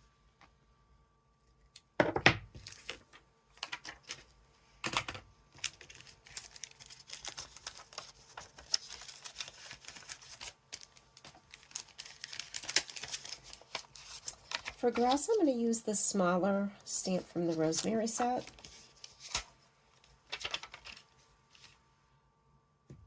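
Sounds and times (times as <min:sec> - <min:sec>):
knocks on a desk: 0:02.0 - 0:02.5
paper rustling and scratching: 0:05.6 - 0:15.4, 0:17.1 - 0:21.8.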